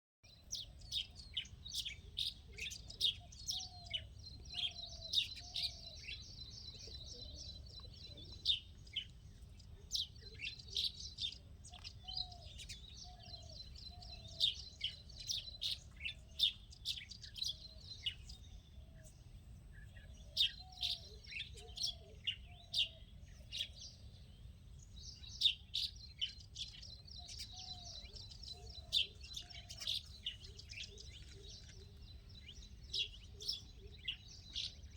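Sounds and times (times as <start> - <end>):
small birds chirping: 0.3 - 34.9.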